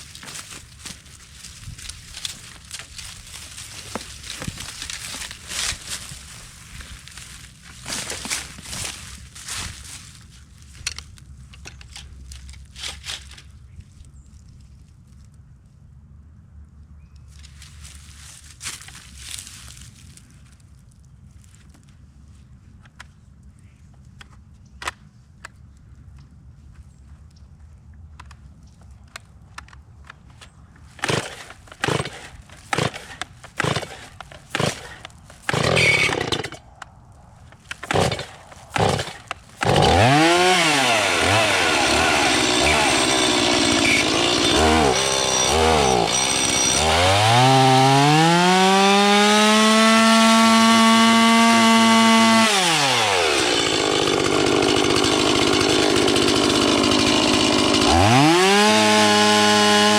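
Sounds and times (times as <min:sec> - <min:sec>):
chainsaw engine idling and revving: 0:31.0 - 0:36.7, 0:37.7 - 0:59.9
chainsaw starter cord rips: 0:31.0 - 0:36.8, 0:37.5 - 0:59.9.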